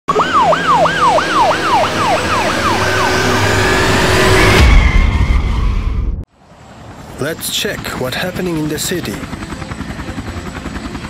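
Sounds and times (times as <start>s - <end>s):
police siren: 0.1s - 6.2s
car engine and road noise: 0.1s - 7.3s
car speeding off: 0.3s - 5.9s.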